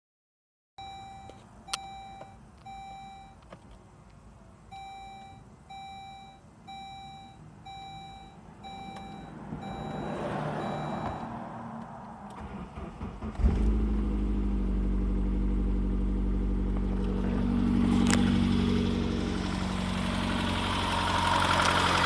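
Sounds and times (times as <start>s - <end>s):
car warning chime beeping: 0.8s - 3.5s, 4.7s - 11.4s.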